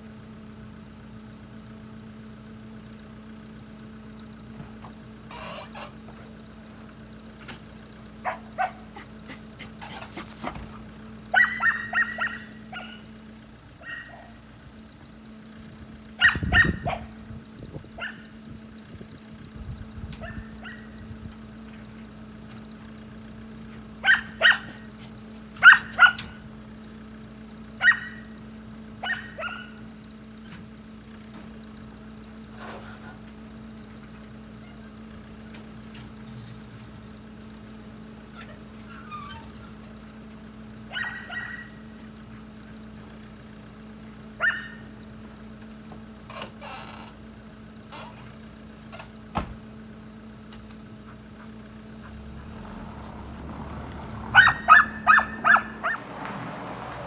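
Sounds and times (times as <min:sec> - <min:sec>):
dog barking: 0:08.2 - 0:13.1, 0:13.8 - 0:14.4, 0:16.2 - 0:17.2, 0:18.0 - 0:18.3, 0:20.2 - 0:21.0, 0:24.0 - 0:26.4, 0:27.8 - 0:28.3, 0:29.0 - 0:29.8, 0:40.9 - 0:41.8, 0:44.4 - 0:44.9, 0:54.3 - 0:56.0.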